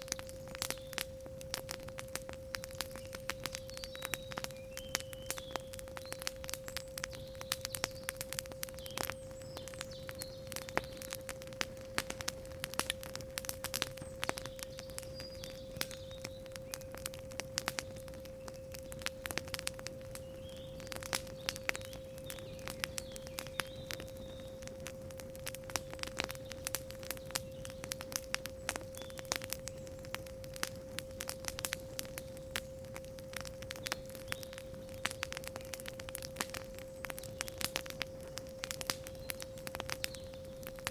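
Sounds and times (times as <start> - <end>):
campfire crackling: 0.0 - 40.9
pure sine tone: 0.0 - 40.9
faint bird chirps: 2.2 - 11.5, 13.9 - 19.4, 20.0 - 25.2, 26.1 - 30.5, 33.8 - 35.7, 36.5 - 40.8.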